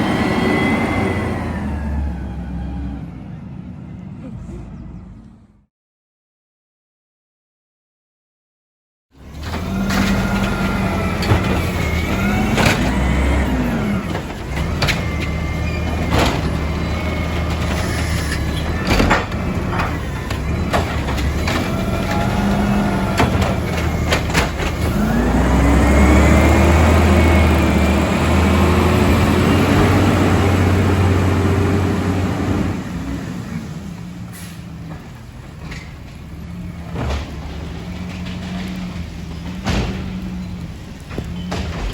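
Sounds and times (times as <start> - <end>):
garbage truck engine: 0.0 - 5.2, 9.2 - 41.9
metal clanks and knocks: 34.9 - 40.4, 41.0 - 41.9.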